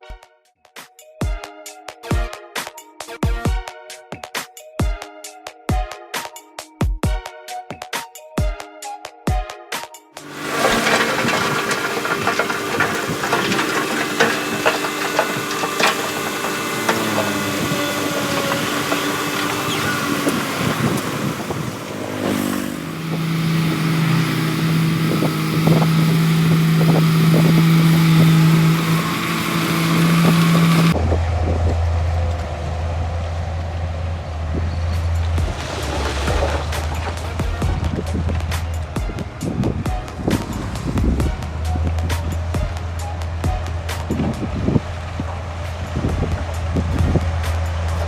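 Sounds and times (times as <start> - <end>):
knocks and clanks: 10.2 - 31.0, 35.0 - 48.0
diesel engine running: 10.2 - 48.0.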